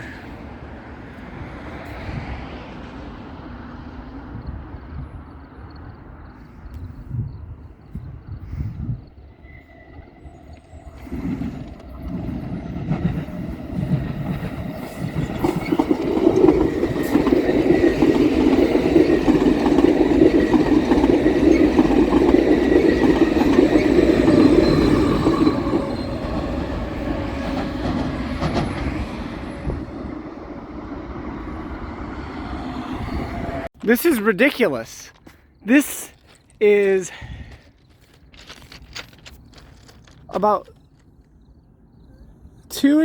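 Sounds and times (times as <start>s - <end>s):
train wheels on rails: 9.2s - 34.1s.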